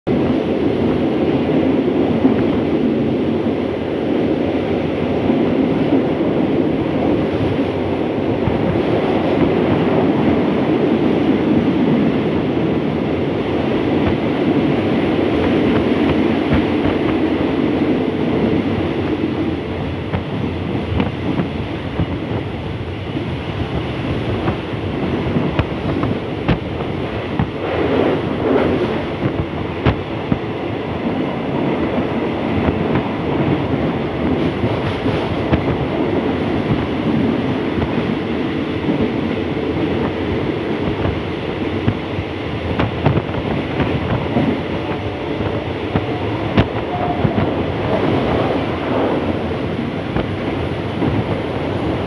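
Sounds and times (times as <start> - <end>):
fast rail clatter: 0.0 - 52.0
train wheels rumbling on rail: 0.0 - 52.0
rushing air: 0.1 - 52.0.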